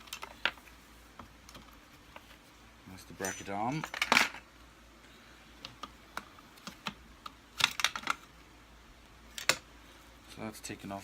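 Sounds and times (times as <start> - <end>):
small plastic parts clicking: 5.6 - 8.3.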